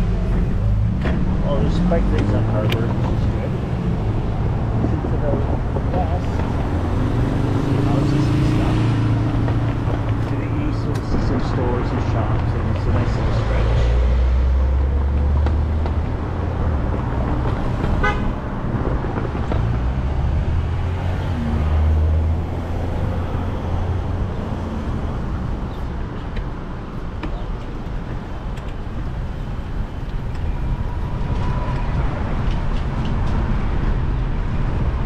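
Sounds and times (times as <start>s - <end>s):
city street traffic: 0.0s - 35.0s
wind rumble on microphone: 0.0s - 35.0s
vehicle horn toot: 18.0s - 18.3s.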